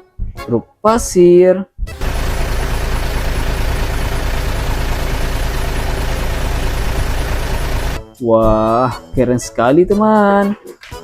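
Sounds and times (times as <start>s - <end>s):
truck engine rumbling: 1.9s - 8.0s.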